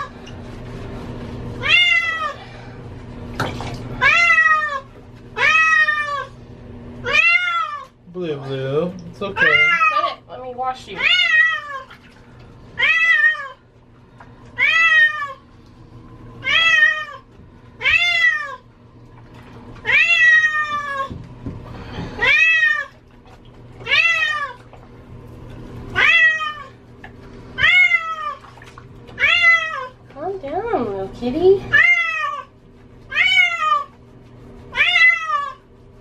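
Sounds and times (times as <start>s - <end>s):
cat meowing in distress: 1.6s - 2.4s, 9.4s - 10.1s, 34.7s - 35.6s.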